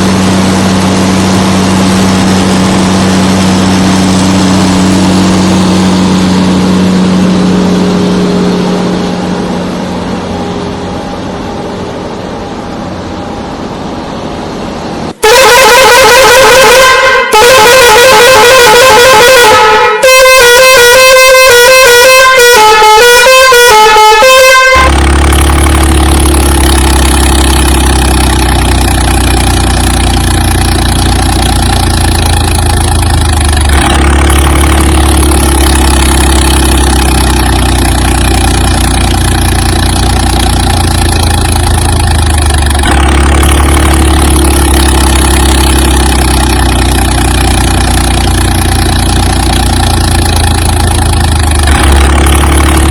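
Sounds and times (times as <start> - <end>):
heavy vehicle engine drone: 0.0 - 52.9
horn-like melody: 15.2 - 27.6.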